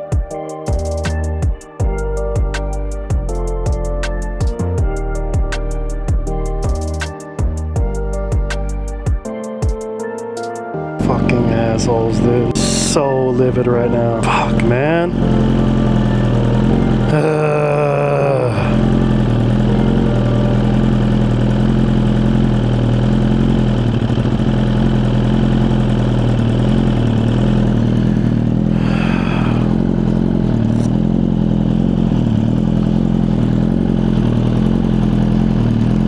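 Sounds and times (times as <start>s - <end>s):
motorcycle engine running steadily: 0.0s - 9.8s, 11.0s - 36.0s.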